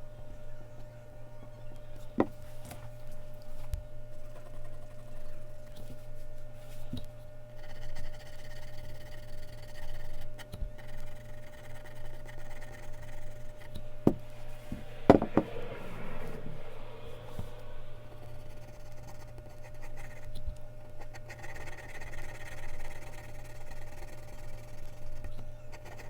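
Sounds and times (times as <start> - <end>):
low electrical hum: 0.0 - 26.0
mechanical pencil scratching on paper: 4.2 - 5.9, 7.6 - 13.8, 18.2 - 26.0
sharp knocks: 14.1 - 15.6.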